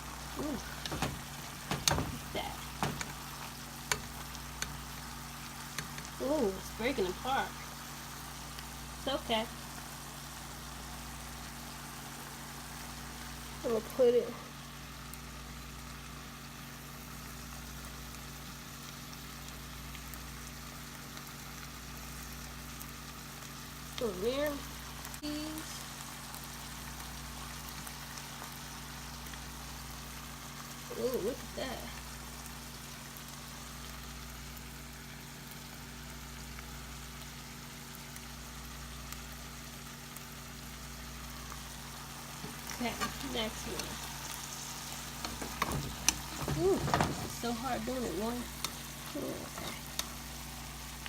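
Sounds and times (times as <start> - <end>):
food sizzling in frying pan: 0.0 - 51.0
faint crackles: 18.0 - 51.0.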